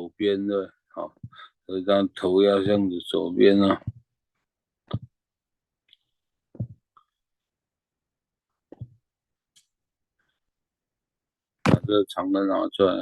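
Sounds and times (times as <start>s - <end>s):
fingertip taps on touchscreen: 6.6s - 6.8s.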